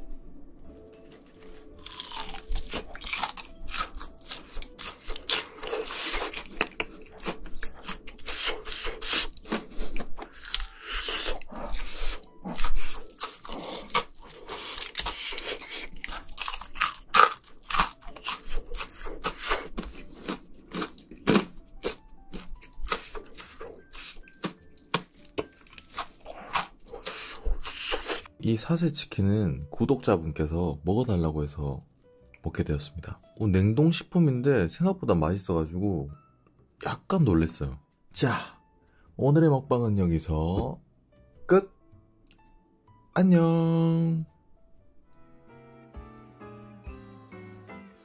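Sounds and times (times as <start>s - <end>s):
fried chicken crunching: 1.6s - 28.3s.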